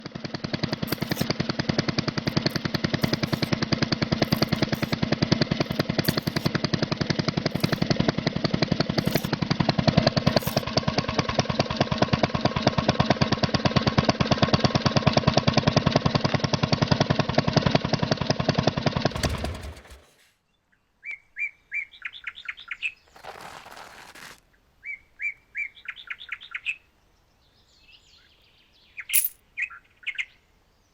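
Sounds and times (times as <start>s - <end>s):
diesel engine knocking: 9.6s - 20.1s.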